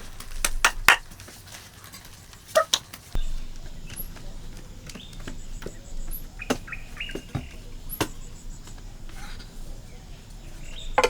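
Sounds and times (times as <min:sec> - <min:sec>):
high bird chirps: 0:03.2 - 0:11.0.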